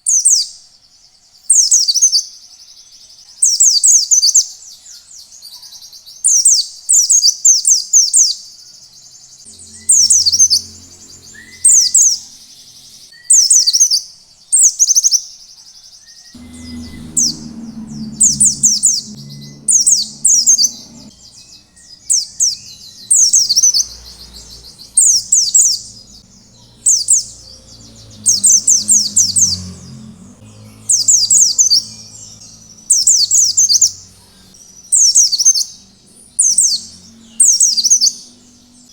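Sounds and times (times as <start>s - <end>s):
faint low hum: 9.4s - 13.1s, 16.4s - 38.9s
bird singing high notes: 9.5s - 13.8s, 16.4s - 38.8s.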